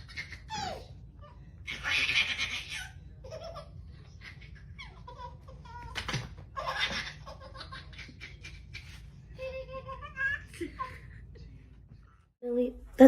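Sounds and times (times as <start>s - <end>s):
people laughing: 9.4s - 11.7s.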